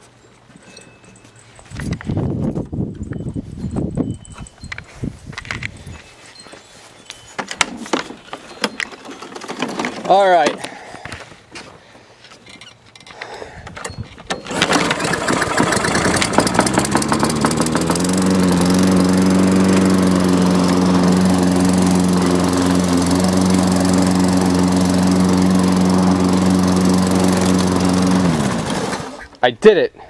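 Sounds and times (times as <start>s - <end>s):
lawn mower engine starting and running: 8.5s - 10.8s, 14.2s - 29.4s.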